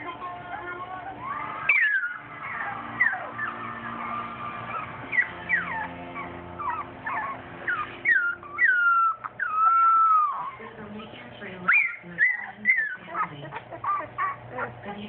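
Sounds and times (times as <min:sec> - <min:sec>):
puppies whining: 0:00.0 - 0:15.0.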